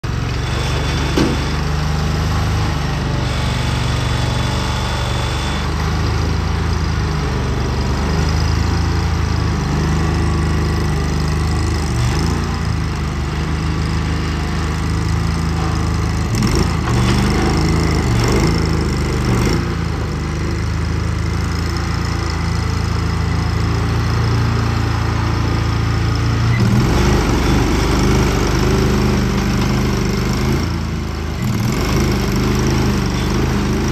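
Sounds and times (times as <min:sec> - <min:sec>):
gas engine running: 0:00.0 - 0:12.0, 0:22.8 - 0:33.9.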